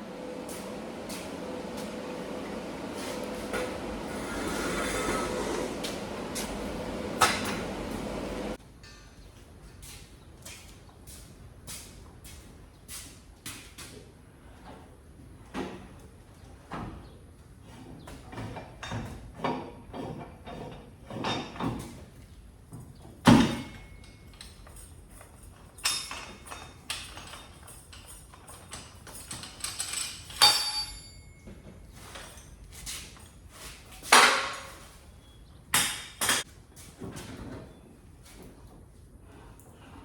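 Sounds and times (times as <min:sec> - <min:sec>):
metal clanks and scrapes: 0:17.7 - 0:22.0
ringing metal hits: 0:30.4 - 0:31.5.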